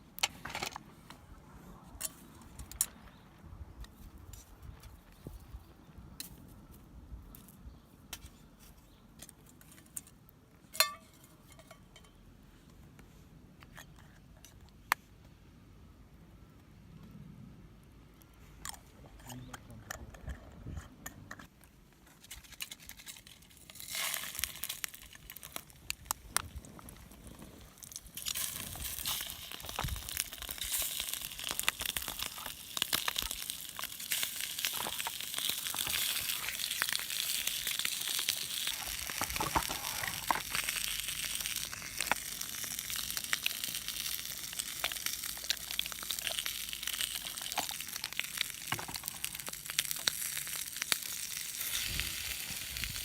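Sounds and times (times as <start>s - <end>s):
food sizzling in a pan: 28.6s - 53.0s
crinkling and clicking from handling: 42.9s - 50.2s.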